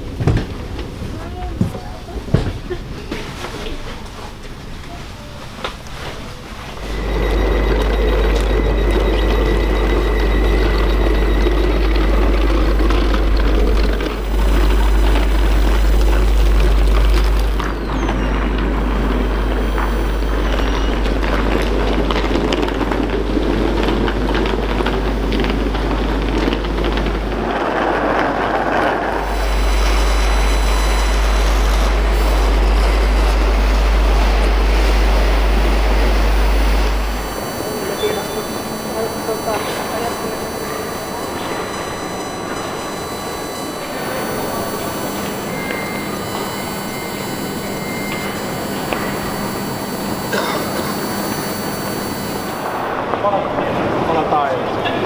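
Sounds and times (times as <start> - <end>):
faint high whine: 6.0 - 54.5
electric trains rumbling: 6.3 - 38.2
hissing: 6.8 - 27.8, 28.7 - 52.8.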